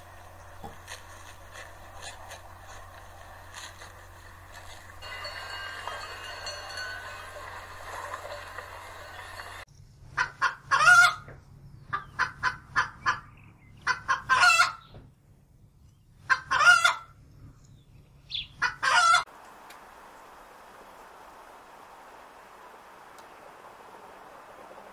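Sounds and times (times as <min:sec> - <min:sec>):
hen cackling: 0:10.1 - 0:11.3, 0:11.9 - 0:14.8, 0:16.2 - 0:17.1, 0:18.6 - 0:19.3
quiet hiss: 0:19.3 - 0:24.9.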